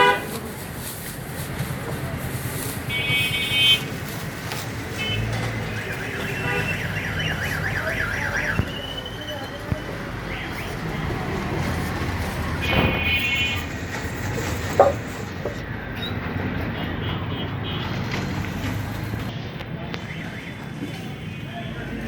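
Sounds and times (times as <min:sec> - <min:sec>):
vehicle horn toot: 0:00.0 - 0:00.4, 0:02.9 - 0:03.9, 0:05.0 - 0:08.0
street traffic noise: 0:00.0 - 0:22.0.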